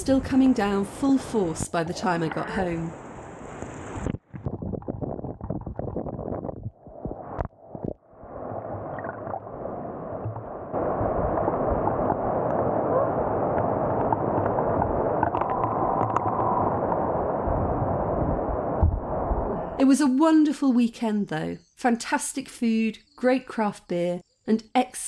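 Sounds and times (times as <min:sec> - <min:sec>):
choppy broken noise: 0:01.5 - 0:09.5.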